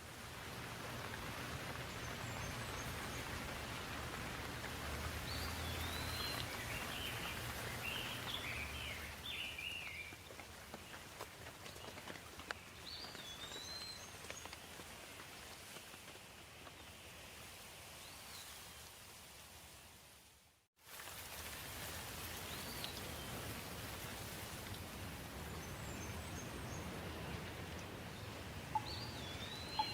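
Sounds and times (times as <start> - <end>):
rain hissing: 0.0 - 10.5
sharp water drips: 0.2 - 13.6, 26.9 - 29.9
bird chirping: 28.2 - 29.9.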